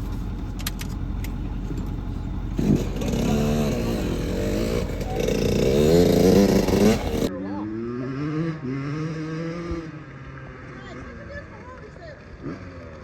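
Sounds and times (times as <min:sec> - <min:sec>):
low steady rumble: 0:00.0 - 0:07.3
dirt bike engine revving: 0:00.0 - 0:10.2.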